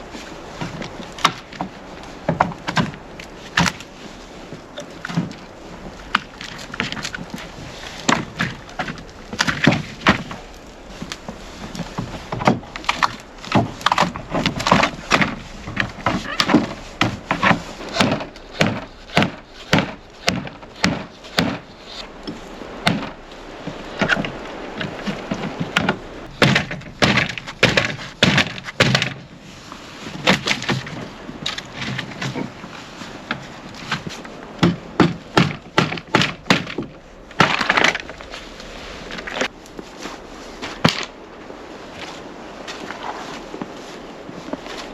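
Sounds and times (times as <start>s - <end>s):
wooden knocks and thunks: 0.6s - 3.8s, 6.1s - 29.3s, 30.2s - 32.7s, 33.3s - 38.4s, 40.6s - 41.2s.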